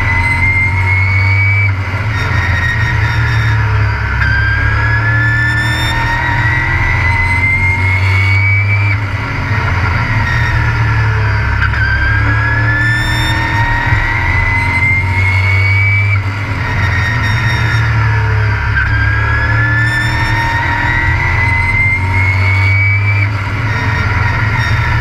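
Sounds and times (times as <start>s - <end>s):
road and wind noise: 0.0s - 25.0s
truck engine revving hard: 0.0s - 25.0s.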